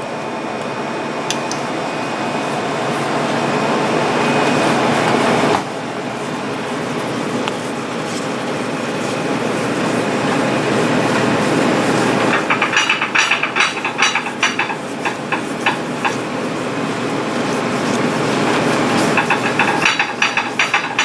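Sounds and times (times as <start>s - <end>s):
knife scraping on whetstone: 8.0s - 9.5s.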